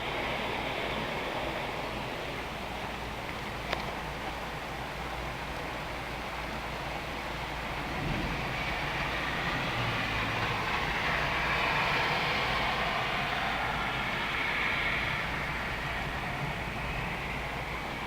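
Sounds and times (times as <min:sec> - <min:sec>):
rain hissing: 0:00.0 - 0:18.0
rolling thunder rumble: 0:07.7 - 0:18.0.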